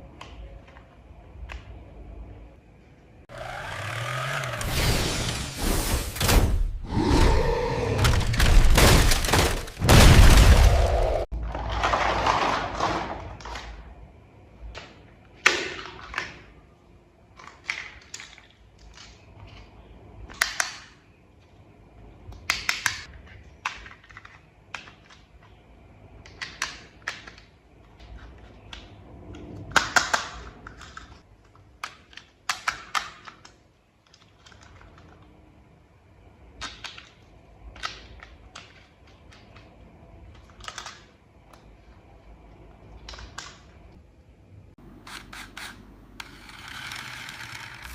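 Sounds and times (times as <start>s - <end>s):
clicks of toy parts handled: 40.3s - 41.6s.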